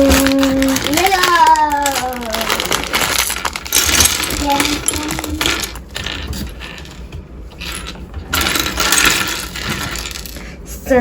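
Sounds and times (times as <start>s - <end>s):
plastic pieces clattering: 0.0s - 10.4s
plastic bags rustling: 0.0s - 10.6s.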